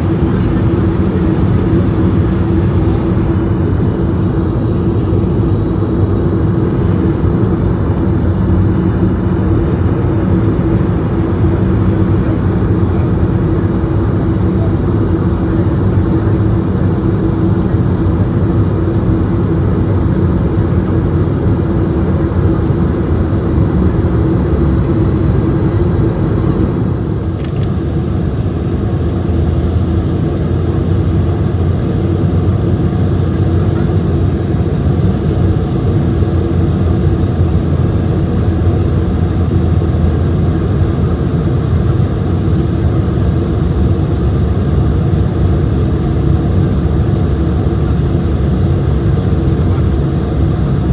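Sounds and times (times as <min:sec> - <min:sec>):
aircraft cabin rumble: 0:00.0 - 0:50.9
brief click: 0:27.2 - 0:27.8.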